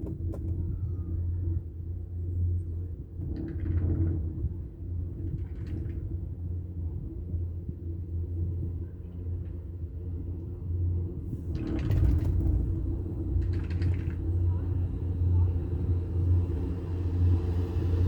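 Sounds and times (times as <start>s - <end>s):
chairlift rumble and hum: 0.0s - 18.0s
rattling clatter: 11.5s - 14.6s.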